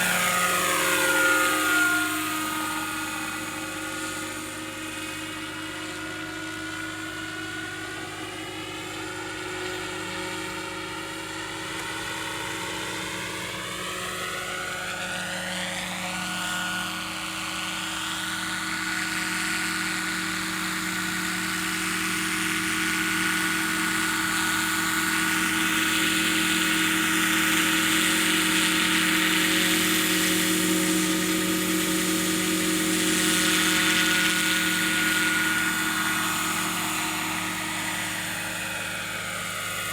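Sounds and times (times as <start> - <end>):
high whine: 0.0 - 6.0
helicopter rotor drone: 0.0 - 39.9.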